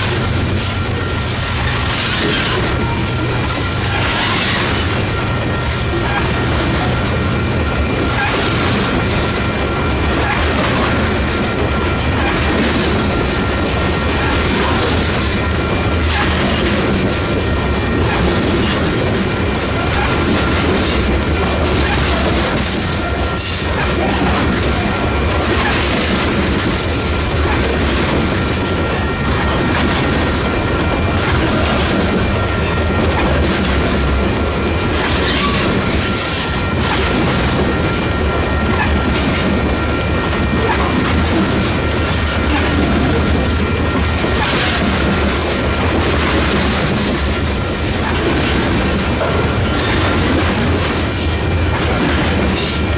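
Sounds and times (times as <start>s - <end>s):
freight train rumbling past: 0.0s - 52.9s.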